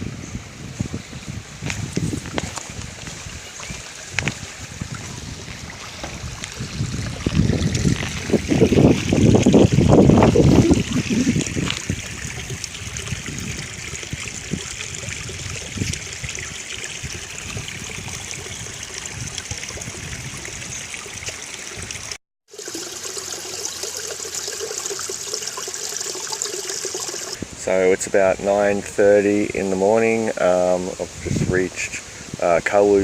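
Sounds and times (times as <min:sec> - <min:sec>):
creek water flowing over rocks: 0:01.6 - 0:27.5.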